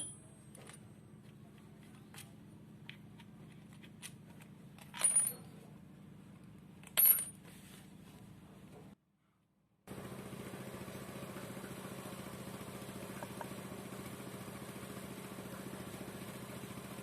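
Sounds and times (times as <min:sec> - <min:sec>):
small metal parts clinking: 0:03.7 - 0:05.6, 0:06.8 - 0:07.4.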